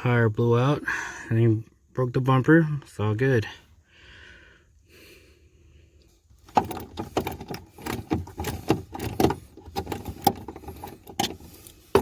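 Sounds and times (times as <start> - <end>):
metal parts and tools clanking: 6.4 - 12.0.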